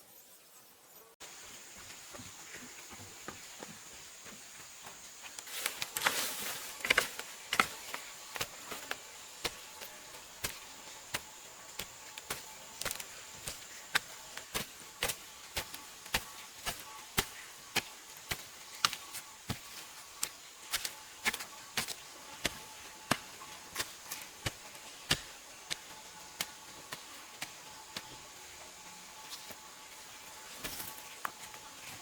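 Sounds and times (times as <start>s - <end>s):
hand tool striking: 6.0s - 28.2s.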